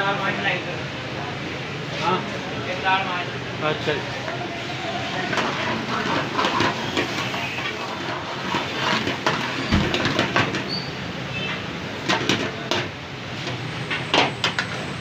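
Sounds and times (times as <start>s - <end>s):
kitchen clatter and knocks: 5.2s - 10.8s, 11.4s - 15.0s.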